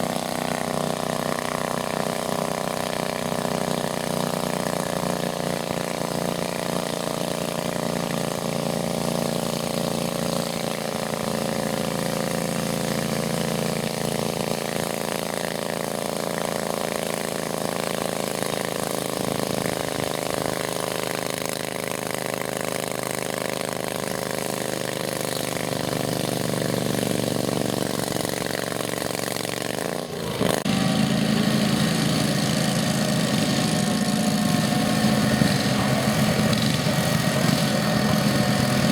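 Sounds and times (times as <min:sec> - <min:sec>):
garden tractor engine running: 0:00.0 - 0:38.9.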